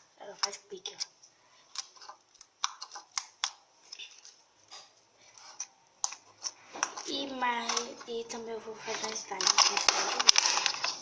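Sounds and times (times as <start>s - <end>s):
slime clicking and popping: 1.8s - 4.1s.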